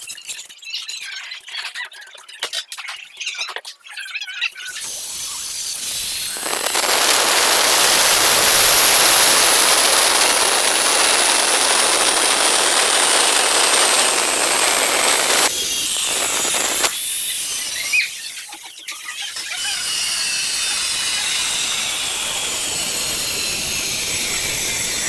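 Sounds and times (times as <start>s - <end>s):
disc cutting tile hiss: 4.8s - 18.2s, 19.6s - 25.0s
angle grinder whine: 4.9s - 18.4s, 19.4s - 25.0s.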